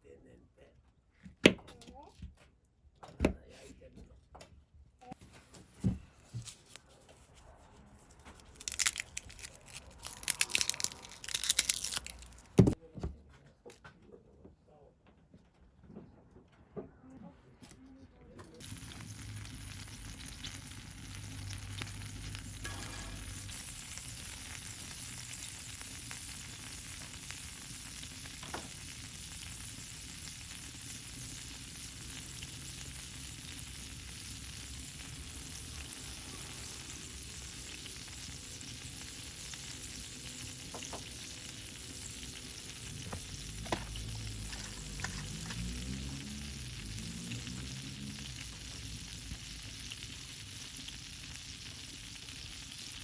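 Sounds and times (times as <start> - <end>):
food sizzling in pan: 18.6 - 53.0.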